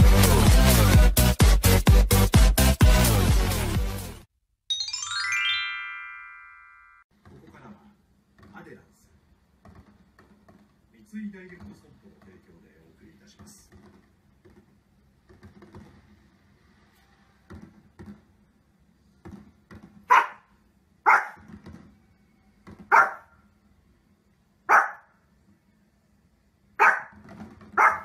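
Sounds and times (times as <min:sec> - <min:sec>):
small dog barking: 0:20.1 - 0:21.5, 0:22.9 - 0:23.4, 0:24.7 - 0:25.2, 0:26.8 - 0:27.2, 0:27.8 - 0:28.0.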